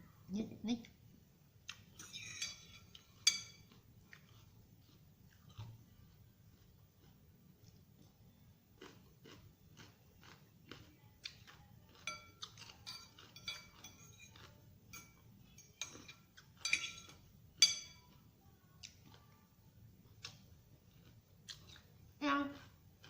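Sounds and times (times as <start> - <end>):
cutlery clinking against a dish: 2.0 - 4.4, 11.9 - 18.2.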